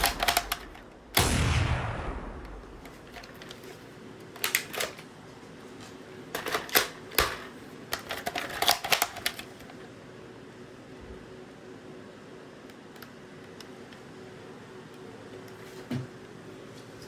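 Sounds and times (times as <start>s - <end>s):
rifle bolt clicks and clacks: 0.0s - 1.0s.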